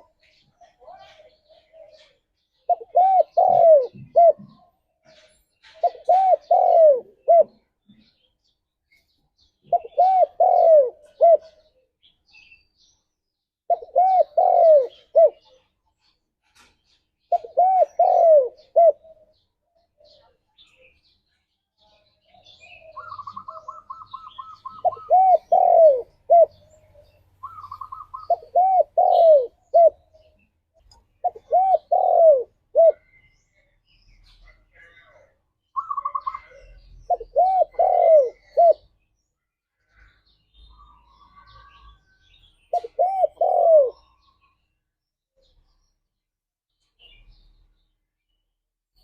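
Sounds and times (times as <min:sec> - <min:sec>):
dove cooing: 0:00.8 - 0:08.0, 0:09.6 - 0:11.8, 0:13.7 - 0:15.7, 0:17.2 - 0:20.4, 0:22.3 - 0:30.3, 0:31.2 - 0:33.2, 0:34.2 - 0:39.0, 0:42.7 - 0:44.4.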